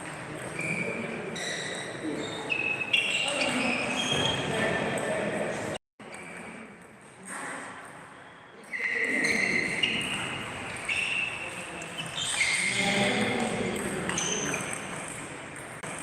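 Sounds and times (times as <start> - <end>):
shoes squeaking on floor: 0.0 - 5.0, 8.7 - 15.1.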